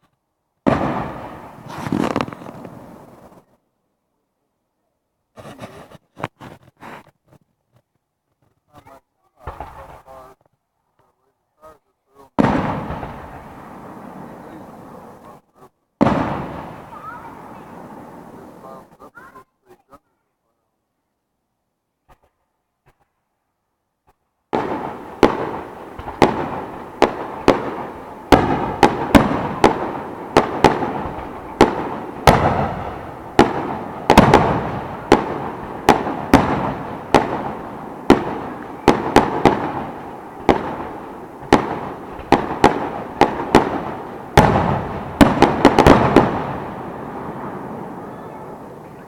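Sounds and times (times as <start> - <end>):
fireworks shells bursting: 0.7 - 3.5, 24.0 - 49.0.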